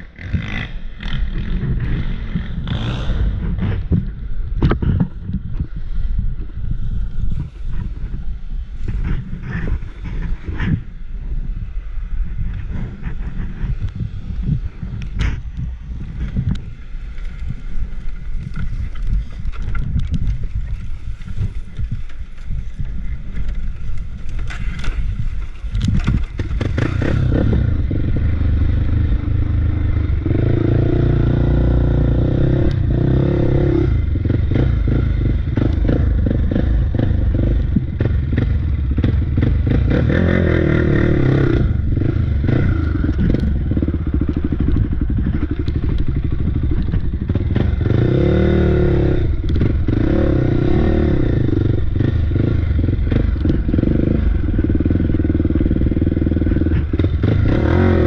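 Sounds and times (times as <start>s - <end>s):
off-road bike engine revving: 0.0s - 6.0s, 6.6s - 58.0s.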